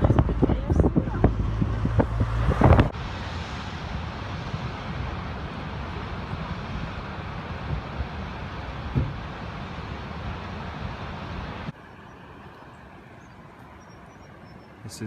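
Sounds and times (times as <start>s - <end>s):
heavy rain: 0.0s - 11.7s
low rumble: 0.0s - 13.3s
wind buffeting microphone: 0.0s - 15.0s.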